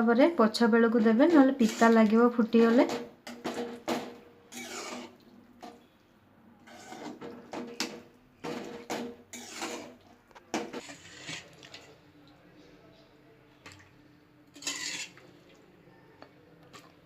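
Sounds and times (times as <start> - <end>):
spoon stirring and scraping pan: 0.7 - 6.0, 6.6 - 12.1, 14.5 - 17.0.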